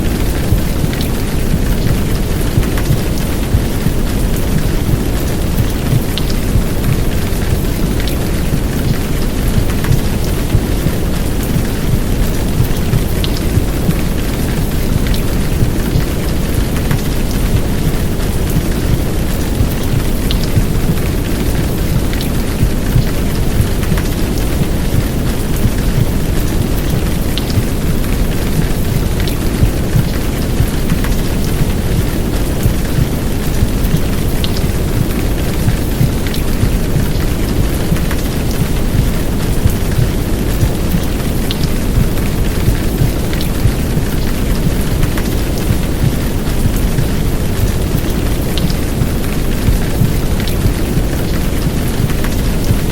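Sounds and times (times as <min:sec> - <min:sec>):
heavy rain hiss: 0:00.0 - 0:52.9.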